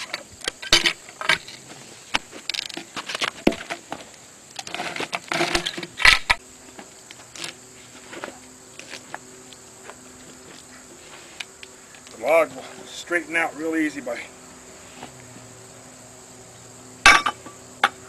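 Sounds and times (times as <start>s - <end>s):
log turner metallic knocks and scraping: 0.0s - 6.4s, 17.1s - 18.0s
faint steady hum: 0.0s - 18.0s.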